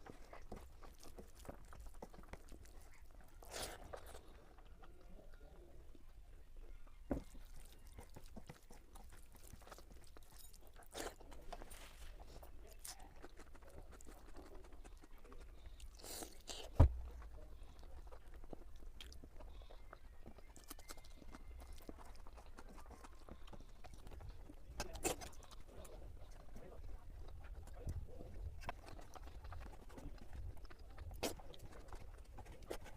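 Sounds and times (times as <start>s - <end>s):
chewing and eating: 0.0s - 32.9s.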